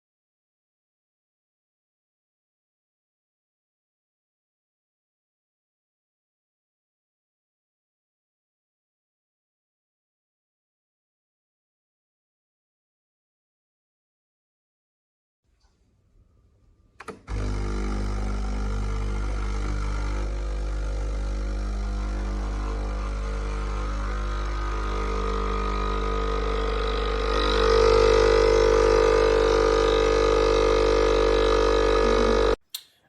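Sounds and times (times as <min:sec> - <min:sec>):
espresso machine humming: 0:17.0 - 0:32.6.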